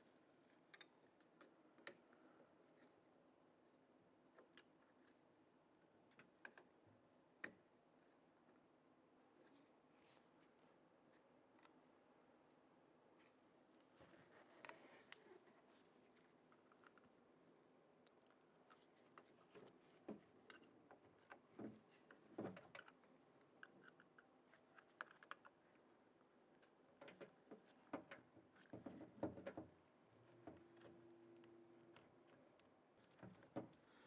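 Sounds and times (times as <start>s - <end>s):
faint steady hum: 0.0s - 34.0s
plastic clicks and scrapes: 18.1s - 25.8s, 26.6s - 34.0s.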